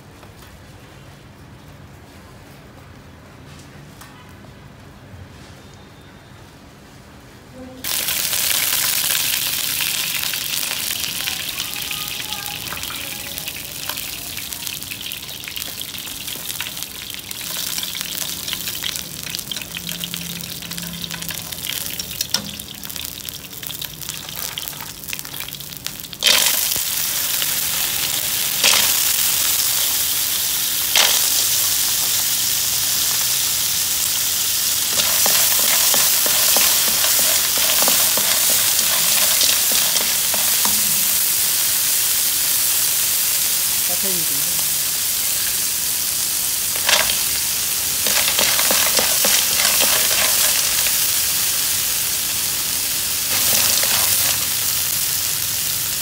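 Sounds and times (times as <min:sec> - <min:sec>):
oil sizzling in a wok: 0:07.8 - 0:56.0
wooden spatula scraping: 0:34.9 - 0:41.2.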